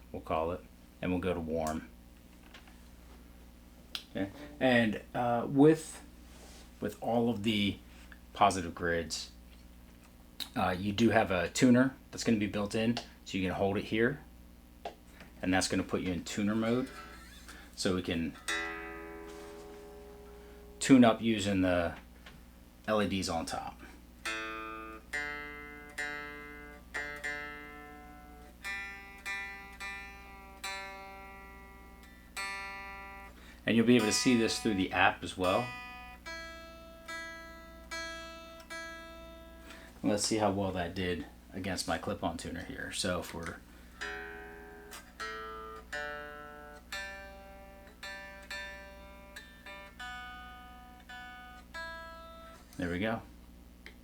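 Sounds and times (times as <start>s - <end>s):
faint amp hum: 0.0s - 54.0s
electric guitar single notes: 4.0s - 5.0s, 15.6s - 21.5s, 24.2s - 40.8s, 43.3s - 52.9s.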